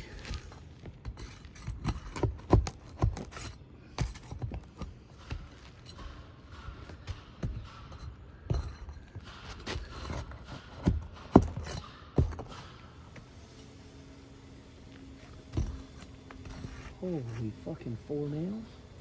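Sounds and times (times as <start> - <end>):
roof shingle being pried loose: 0.0 - 12.8.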